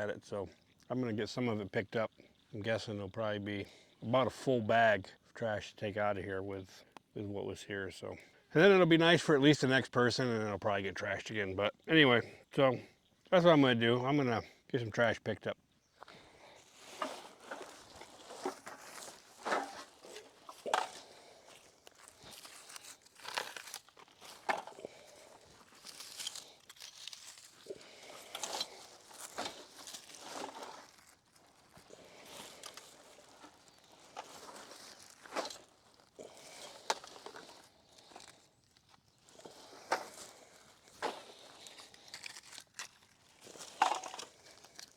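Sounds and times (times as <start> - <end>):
footsteps on dry ground: 16.0 - 41.8
litter rustling and crinkling: 16.6 - 44.9.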